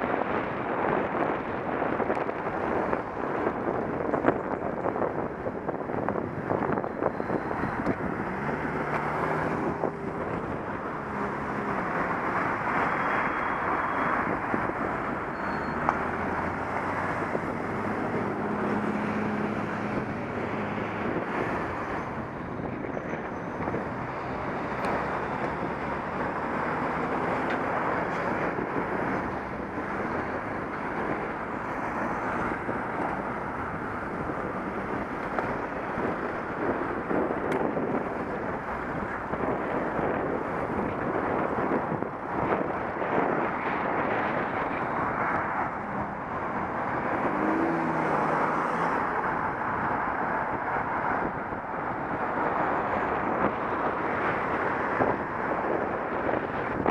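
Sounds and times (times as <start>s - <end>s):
wind rushing over microphone: 0.0s - 56.9s
passing vehicle engine hum: 0.9s - 56.9s.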